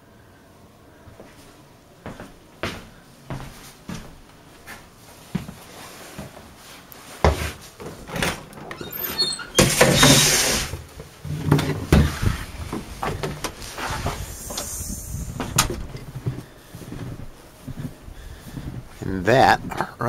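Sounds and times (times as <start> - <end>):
door squeaks: 8.2 - 10.8.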